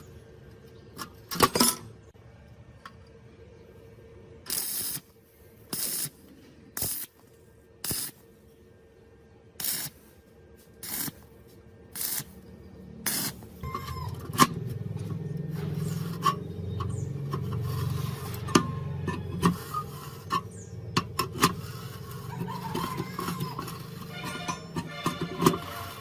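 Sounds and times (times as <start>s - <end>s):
scraping and rubbing on metal: 13.1s - 26.0s.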